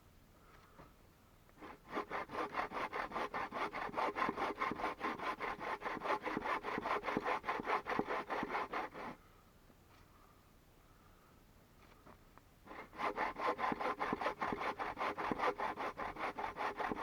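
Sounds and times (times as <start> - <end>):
hand saw cutting wood: 1.6 - 9.2, 12.7 - 17.0.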